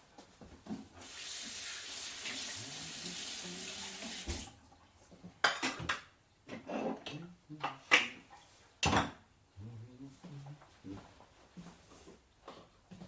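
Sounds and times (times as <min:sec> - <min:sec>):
tap running into sink: 0:03.2 - 0:04.5
dishes clinking: 0:05.4 - 0:07.1.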